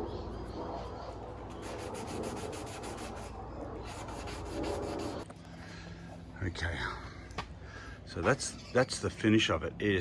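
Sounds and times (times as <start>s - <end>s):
sandpaper rubbing on plastic: 1.5s - 5.2s.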